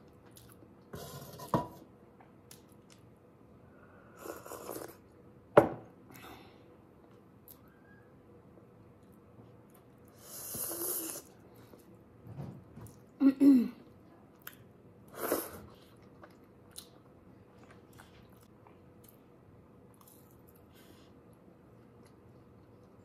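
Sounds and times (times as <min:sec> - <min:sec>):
person chewing food: 0:14.3 - 0:19.3, 0:19.9 - 0:23.0.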